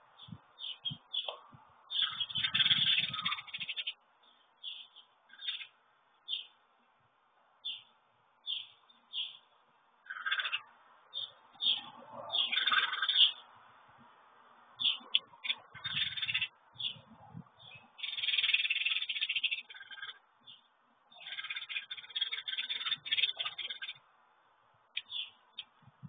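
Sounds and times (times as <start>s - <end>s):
songbird chirping: 0.0s - 13.6s, 14.8s - 24.1s, 24.9s - 26.0s.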